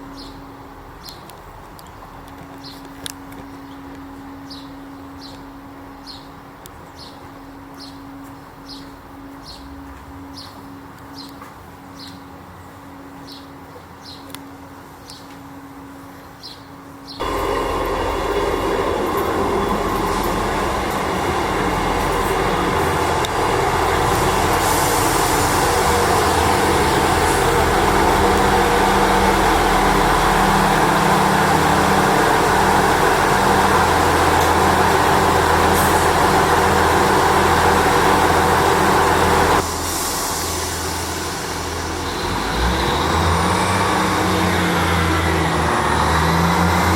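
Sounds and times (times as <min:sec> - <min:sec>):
train rumbling past: 0:16.8 - 0:46.9.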